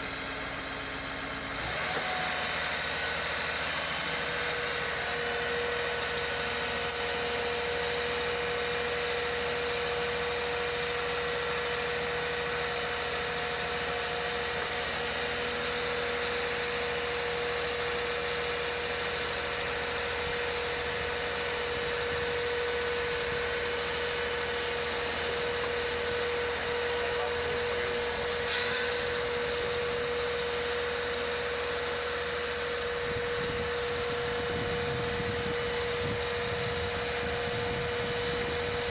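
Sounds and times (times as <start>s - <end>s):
steady hum: 0.0s - 38.9s
mid-pitched tone: 26.6s - 30.9s.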